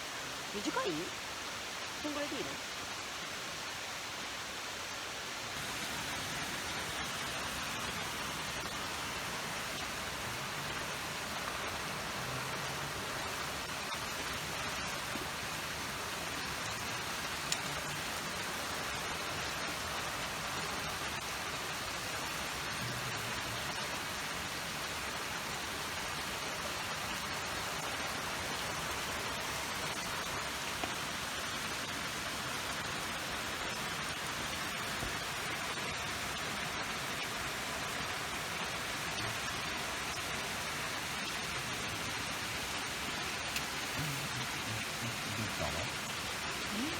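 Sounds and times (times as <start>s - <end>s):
rushing water: 0.0s - 46.9s.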